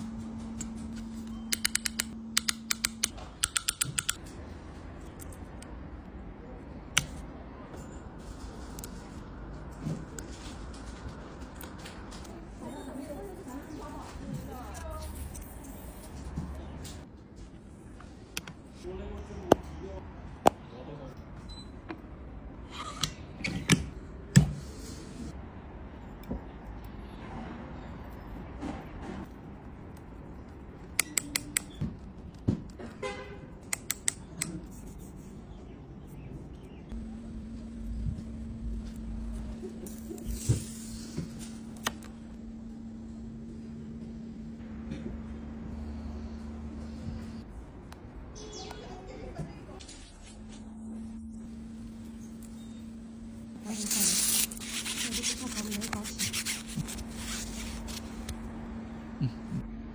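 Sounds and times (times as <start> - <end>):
steady low hum: 0.0 - 21.4, 34.2 - 59.9
small tools clicking and tapping: 0.6 - 4.3, 30.8 - 31.8.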